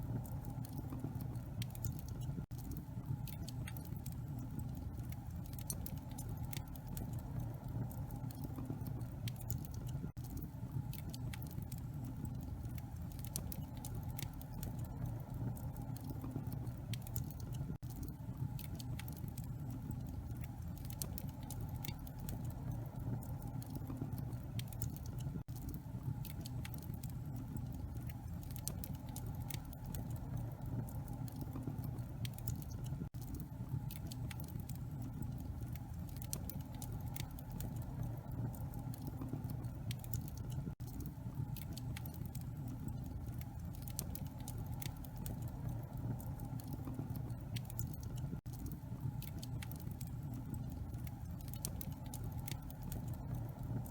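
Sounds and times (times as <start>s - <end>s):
low rumble of fire: 0.0s - 53.9s
wood fire crackling: 0.0s - 53.9s.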